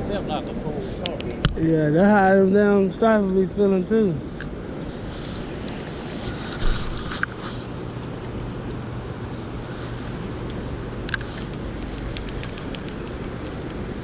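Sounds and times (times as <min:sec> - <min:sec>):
rushing water current: 0:04.8 - 0:11.6.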